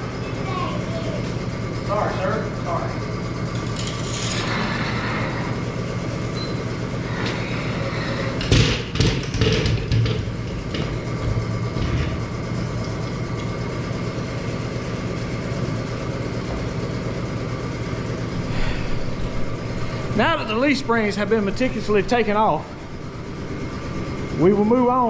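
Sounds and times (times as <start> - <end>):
mechanical hum: 0.0 - 25.0
knocks and clatter: 8.4 - 12.3.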